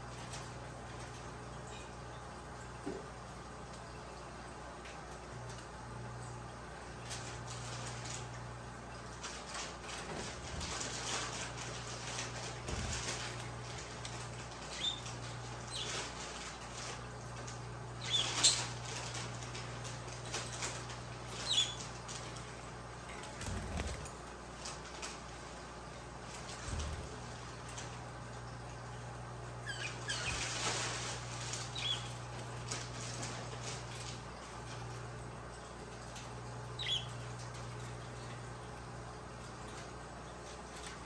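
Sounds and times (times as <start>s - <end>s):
light scratching and rustling: 29.8s - 35.0s
budgerigars chirping: 36.8s - 37.1s.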